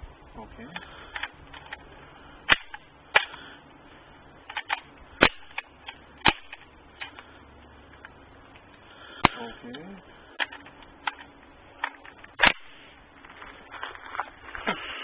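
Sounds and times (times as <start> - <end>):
rifle shots: 4.6 - 6.7, 12.4 - 12.8.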